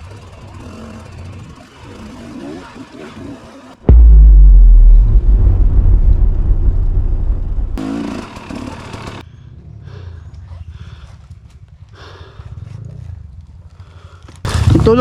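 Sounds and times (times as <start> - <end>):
motorcycle engine rumble: 3.9 - 8.2.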